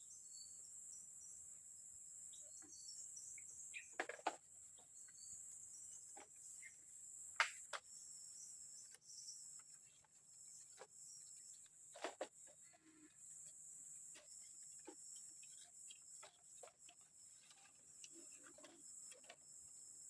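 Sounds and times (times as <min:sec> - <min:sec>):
insects chorus: 0:00.0 - 0:20.0.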